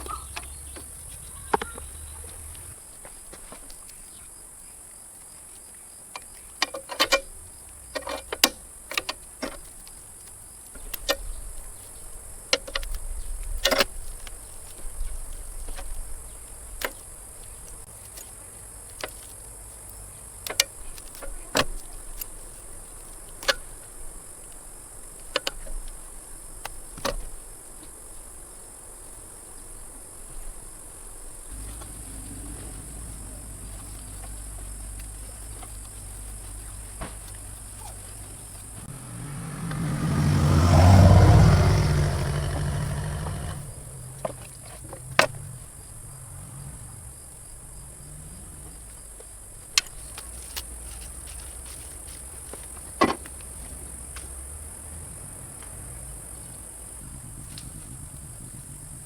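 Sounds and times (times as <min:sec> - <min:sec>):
crickets chirring: 0:00.0 - 0:59.0
sharp clicks and knocks: 0:06.2 - 0:07.3.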